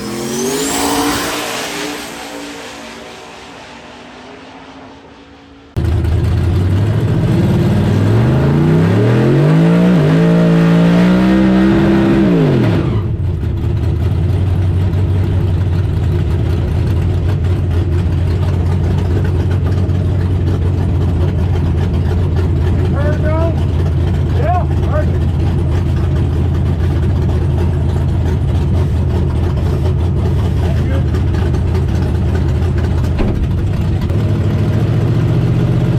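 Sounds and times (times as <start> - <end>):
drag racing engine accelerating: 0.0 - 35.9.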